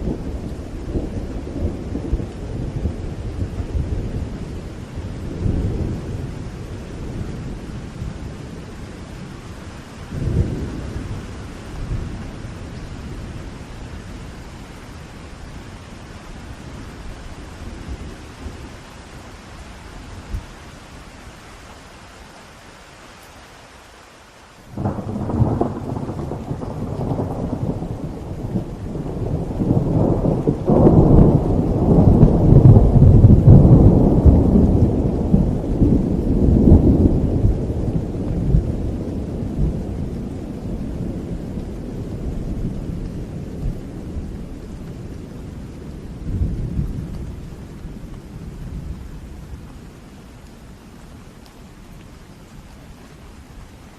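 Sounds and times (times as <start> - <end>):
steady rain: 0.0 - 53.9
rolling thunder: 24.8 - 49.7.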